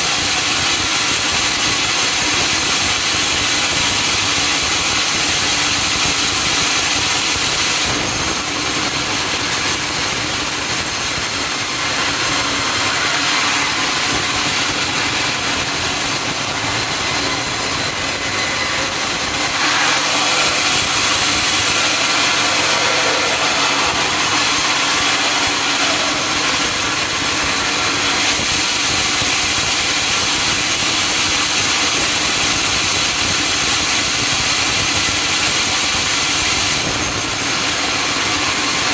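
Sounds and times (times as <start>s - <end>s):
saw cutting through log: 5.0s - 32.9s.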